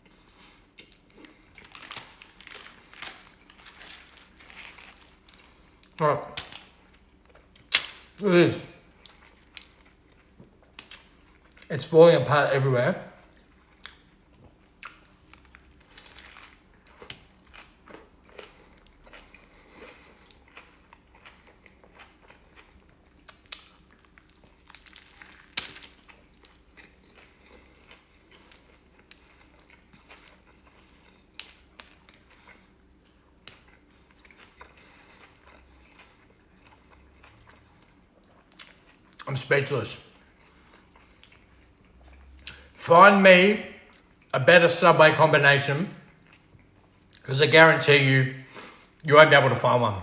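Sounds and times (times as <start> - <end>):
biting and chewing sandwich: 0.6 - 8.2, 13.2 - 39.3.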